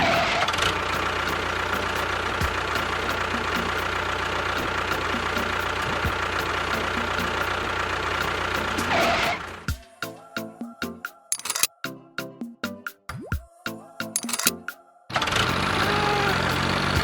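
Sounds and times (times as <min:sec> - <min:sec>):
small engine humming: 0:00.0 - 0:09.8, 0:15.2 - 0:17.0.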